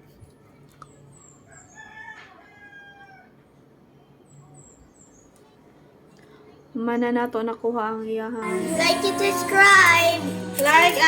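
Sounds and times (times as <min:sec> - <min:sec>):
faint rooster crowing: 0:01.4 - 0:03.6.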